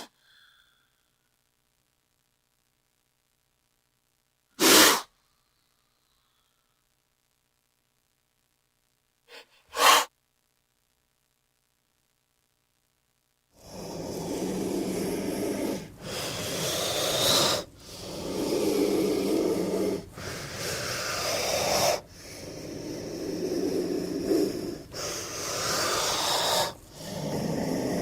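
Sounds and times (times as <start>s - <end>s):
snake hissing: 4.6s - 5.1s, 9.3s - 10.1s, 13.6s - 28.0s.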